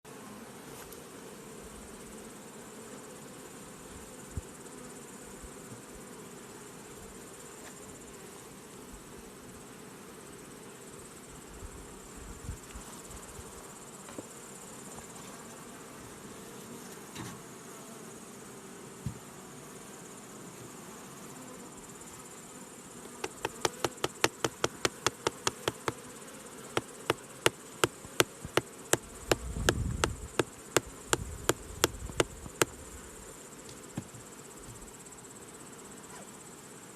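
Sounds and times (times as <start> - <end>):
bees humming: 23.0 - 33.1
sharp knocks: 23.1 - 26.0, 26.8 - 30.5, 31.1 - 32.7.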